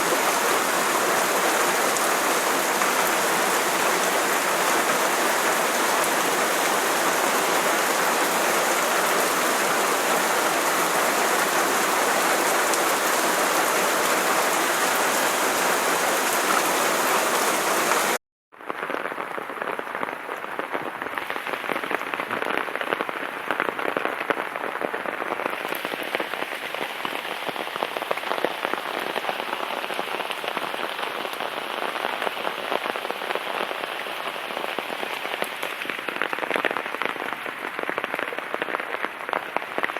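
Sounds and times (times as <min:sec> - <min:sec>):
heavy rain falling: 0:00.0 - 0:18.2, 0:18.8 - 0:39.9
raindrops striking: 0:00.0 - 0:18.2.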